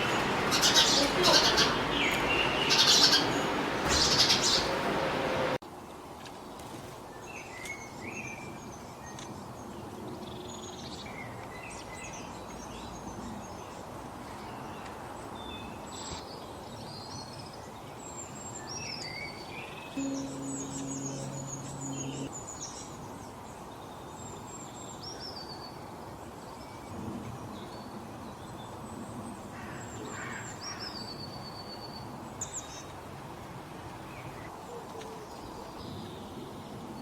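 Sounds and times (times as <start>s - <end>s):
small birds chirping: 0.0s - 5.6s.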